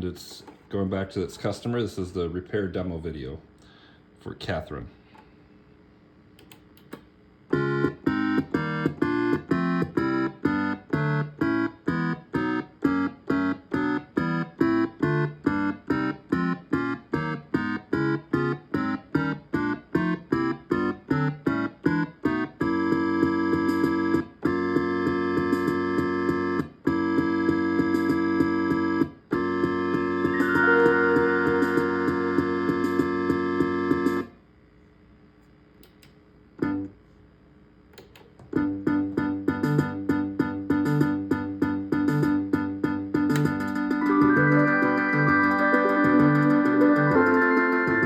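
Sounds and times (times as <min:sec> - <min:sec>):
electronic organ-like chords: 0:06.4 - 0:34.3, 0:36.6 - 0:37.0, 0:38.0 - 0:48.0.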